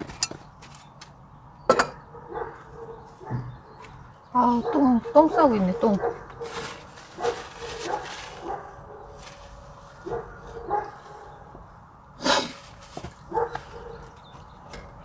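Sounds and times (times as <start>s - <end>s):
dog barking: 2.0s - 9.2s, 10.0s - 11.6s, 13.3s - 14.2s.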